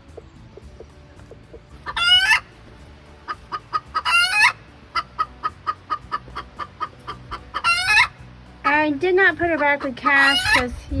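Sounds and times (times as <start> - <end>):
chicken loud calls: 1.8 - 2.5, 3.3 - 8.2, 10.0 - 10.7.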